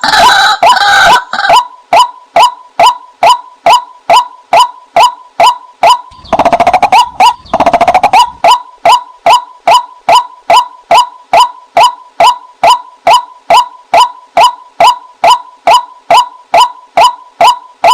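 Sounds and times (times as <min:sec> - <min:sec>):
waterhen clipped call notes: 0:02.4 - 0:17.9
waterhen chattering runs: 0:06.1 - 0:08.6.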